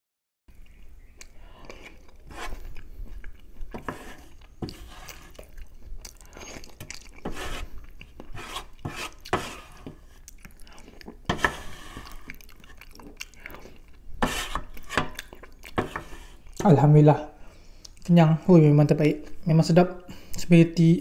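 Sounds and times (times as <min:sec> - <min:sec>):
chewing and wet mouth smacks: 0:00.5 - 0:03.7, 0:04.4 - 0:08.3, 0:10.2 - 0:11.3, 0:12.0 - 0:14.1, 0:14.7 - 0:15.8, 0:17.8 - 0:18.1
wooden utensils scraping metal tray: 0:02.2 - 0:02.7, 0:03.7 - 0:05.5, 0:07.2 - 0:10.2, 0:11.3 - 0:12.4, 0:14.2 - 0:16.9.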